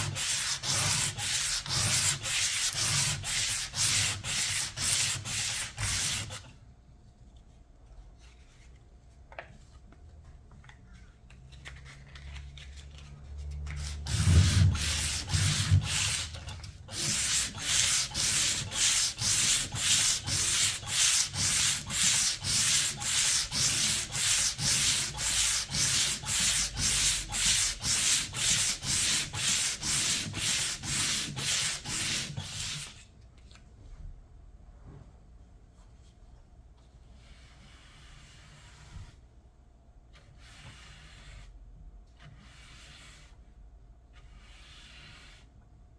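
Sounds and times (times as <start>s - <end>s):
sandpaper rubbing back and forth: 0.0s - 6.4s, 13.8s - 32.9s.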